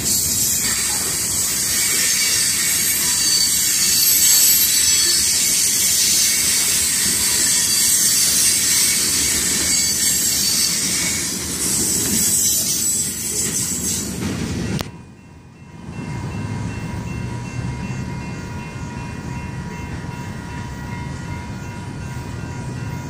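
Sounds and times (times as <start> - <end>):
high-pitched wheel squeal: 0.0 - 14.1
steel wheels rumbling on rail: 0.0 - 23.0.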